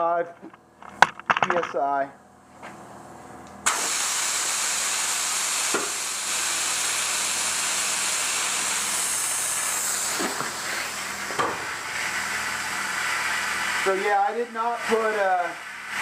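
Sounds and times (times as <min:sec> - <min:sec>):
compressed air hissing: 0:03.6 - 0:16.0.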